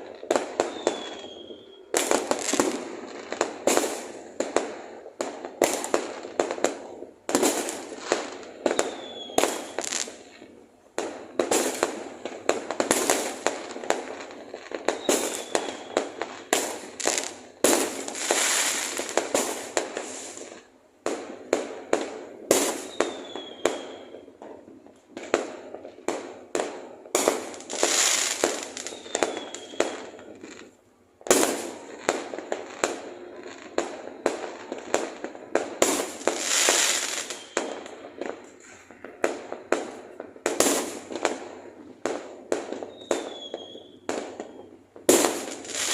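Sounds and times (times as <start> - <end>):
fireworks bangs: 0.0 - 45.9
fireworks crackling: 0.0 - 45.9
falling whistles: 0.6 - 2.0, 8.8 - 9.9, 15.0 - 16.6, 22.8 - 24.3, 28.8 - 30.2, 37.1 - 37.9, 42.8 - 44.7.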